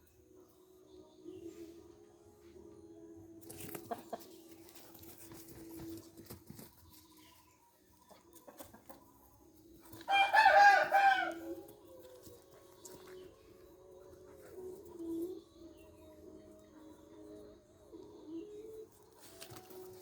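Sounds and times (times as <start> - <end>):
rooster crowing: 10.1 - 11.6.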